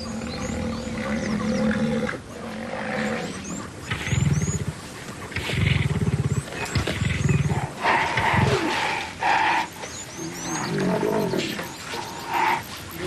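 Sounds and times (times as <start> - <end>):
lions growling and snarling: 0.0 - 13.0
bird chirps: 9.7 - 13.0.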